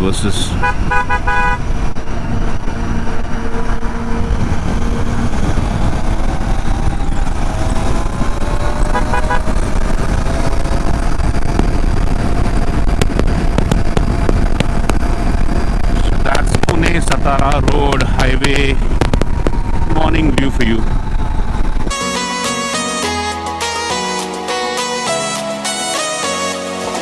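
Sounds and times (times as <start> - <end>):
wind rushing: 0.0 - 23.6
vehicle horn tooting: 0.5 - 1.7, 8.9 - 9.5
motorcycle engine: 0.5 - 25.7.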